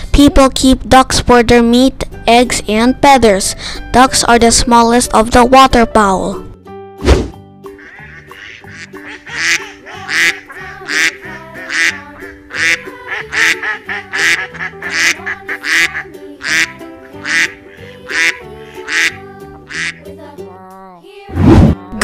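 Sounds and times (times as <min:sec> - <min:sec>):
duck quacking: 0:07.7 - 0:20.0.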